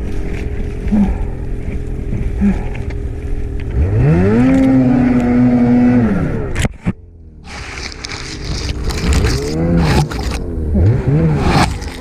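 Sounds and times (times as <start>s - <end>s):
snowmobile engine revving: 3.6s - 6.6s, 7.4s - 12.0s.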